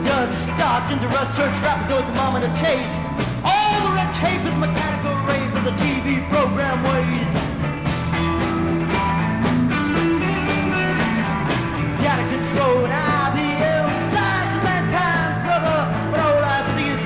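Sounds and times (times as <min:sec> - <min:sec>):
bending lead guitar line: 0:00.0 - 0:17.0
rock band playing: 0:00.0 - 0:17.0.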